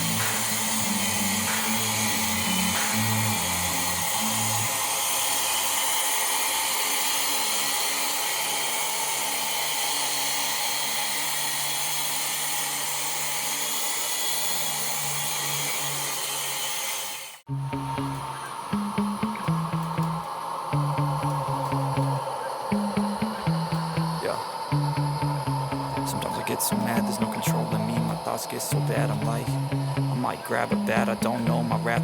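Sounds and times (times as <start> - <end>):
toy helicopter motor whirring: 0.0 - 17.4.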